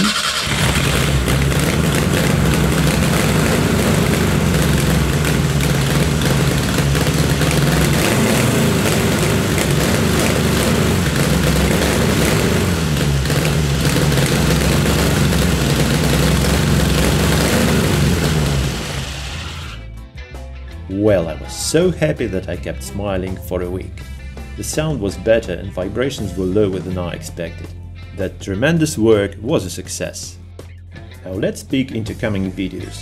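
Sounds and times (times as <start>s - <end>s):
car engine running steadily: 0.0s - 19.8s.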